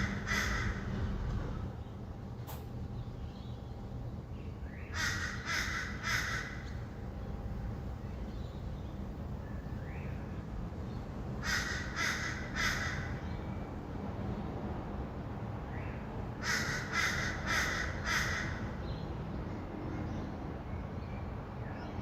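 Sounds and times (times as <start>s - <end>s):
bird harsh raspy calls: 0.0s - 1.8s, 4.6s - 7.0s, 11.4s - 13.7s, 15.8s - 19.0s
distant city traffic hum: 0.0s - 22.0s.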